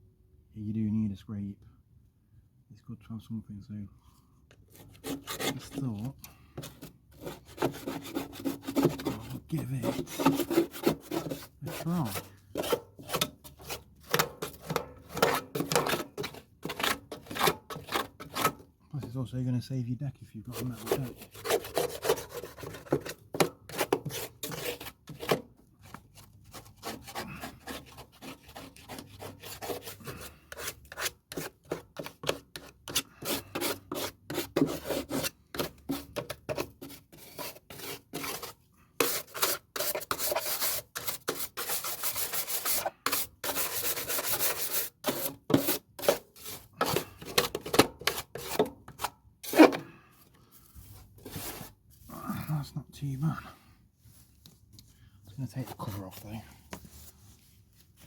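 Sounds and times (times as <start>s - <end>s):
brush scrubbing and scraping: 4.7s - 18.7s, 20.4s - 52.2s.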